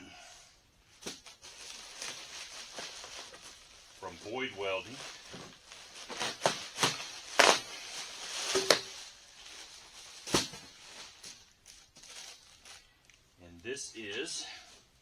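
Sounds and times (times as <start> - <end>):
packaging scraping and rustling: 1.0 - 12.9.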